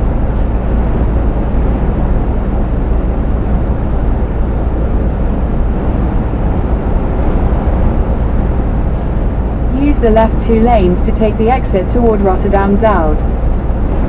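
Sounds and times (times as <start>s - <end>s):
truck engine and tyres rumbling: 0.0s - 14.0s.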